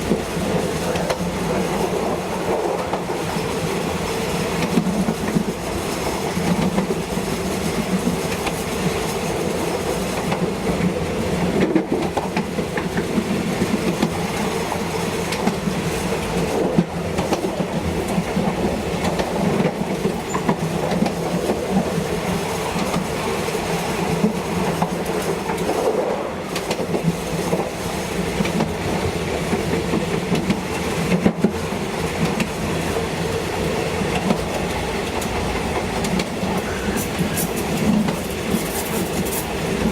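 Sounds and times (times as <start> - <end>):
train drone: 0.0 - 39.9
train wheels clicking over rail joints: 0.0 - 39.9.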